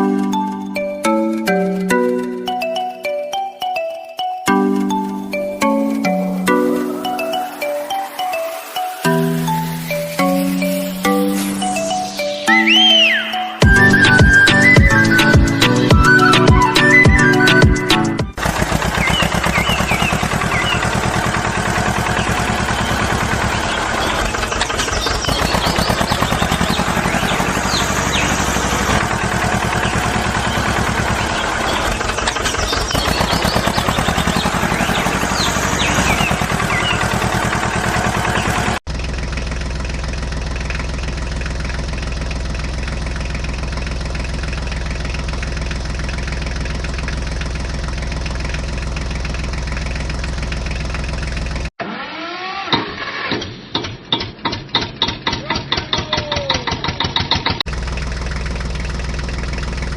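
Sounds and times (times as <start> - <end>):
engine idling: 13.6 - 51.7, 54.1 - 59.9.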